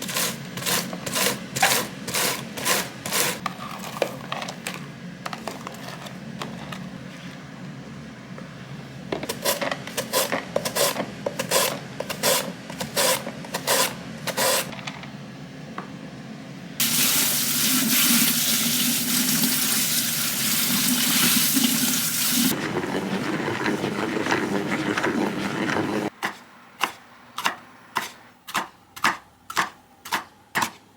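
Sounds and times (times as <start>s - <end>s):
tap water running into sink: 16.8s - 22.5s.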